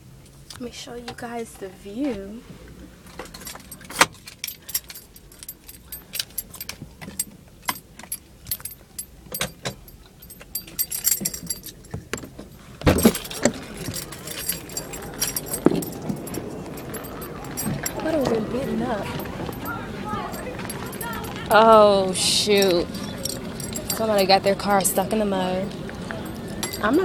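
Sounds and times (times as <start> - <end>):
clicks and rattles of handling: 3.1 - 21.7, 22.5 - 25.0
keys jangling: 3.1 - 27.0.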